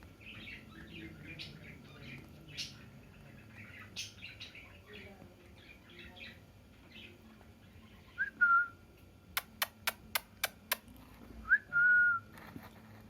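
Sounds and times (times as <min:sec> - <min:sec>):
sharp clicks: 0:09.4 - 0:10.8.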